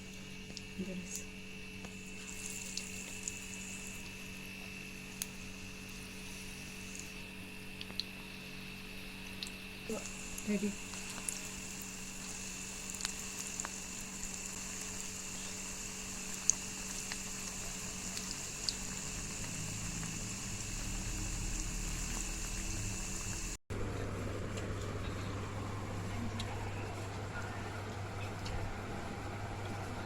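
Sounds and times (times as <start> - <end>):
food sizzling in hot oil: 1.9 - 7.2, 8.8 - 23.6.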